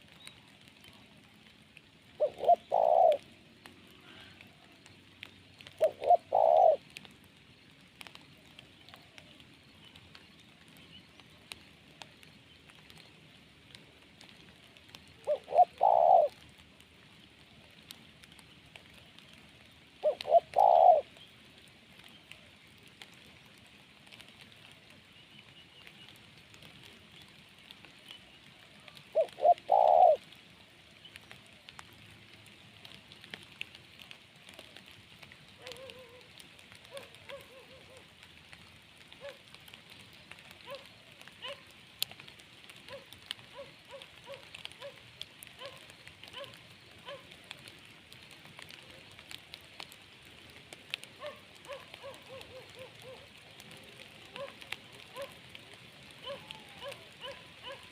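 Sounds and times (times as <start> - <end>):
rain pattering with drips: 0.0 - 57.9
dove cooing: 2.1 - 4.8, 5.6 - 7.1, 15.0 - 16.5, 20.0 - 21.2, 28.5 - 30.4, 35.5 - 38.2, 39.2 - 39.5, 40.2 - 41.7, 42.8 - 47.7, 51.0 - 57.9.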